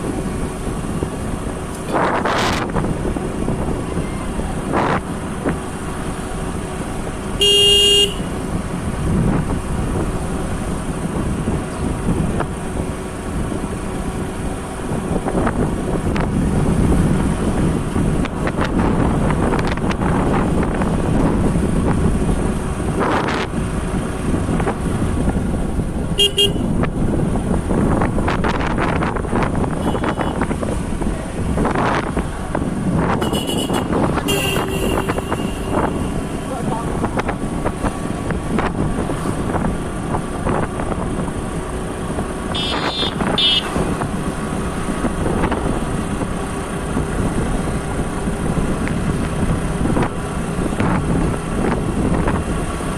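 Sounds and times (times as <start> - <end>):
motorcycle road and wind noise: 0.0 - 52.9
vehicle horn honking: 7.4 - 8.4, 26.2 - 26.8, 29.8 - 30.4, 33.2 - 36.3, 42.5 - 43.8.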